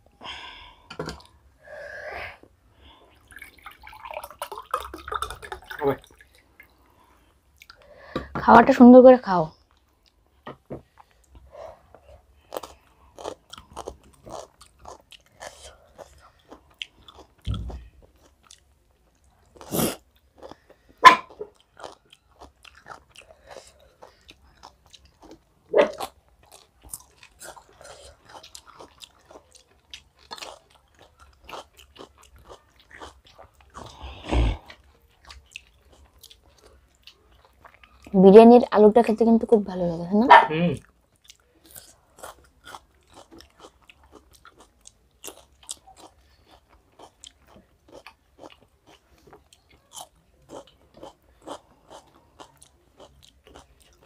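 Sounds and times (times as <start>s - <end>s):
chewing and mouth smacks: 7.5s - 7.9s, 12.4s - 38.2s, 40.8s - 54.0s.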